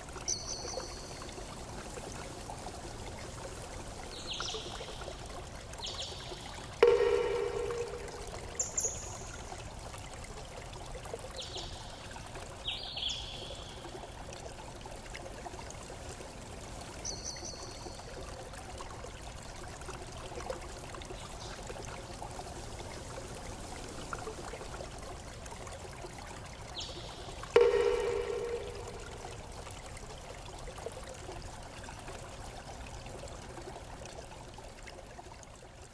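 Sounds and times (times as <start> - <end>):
water flowing: 0.0 - 35.9
pitched tone with overtones: 6.8 - 9.2, 27.6 - 29.4.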